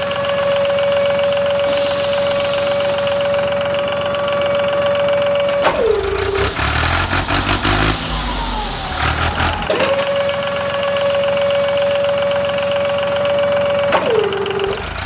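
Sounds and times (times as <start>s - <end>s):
loud rumbling engine-like sound: 0.0s - 15.0s
small motor whining: 1.7s - 11.3s.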